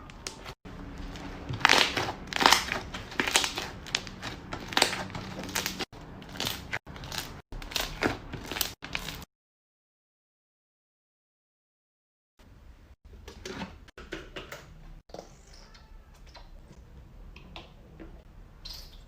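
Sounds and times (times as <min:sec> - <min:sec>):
slime squished by hand: 0:01.1 - 0:09.2.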